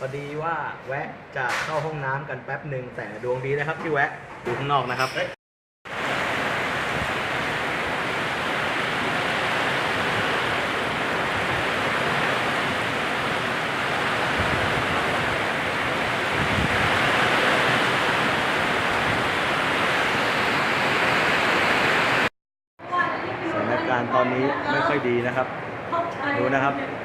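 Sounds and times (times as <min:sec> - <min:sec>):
heavy rain pouring: 0:05.9 - 0:22.3.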